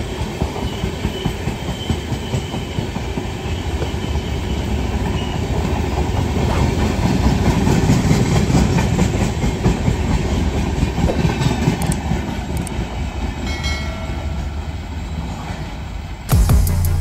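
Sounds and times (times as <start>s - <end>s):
train wheel clatter: 0.0s - 12.9s
train coaches rumbling on track: 0.0s - 16.3s.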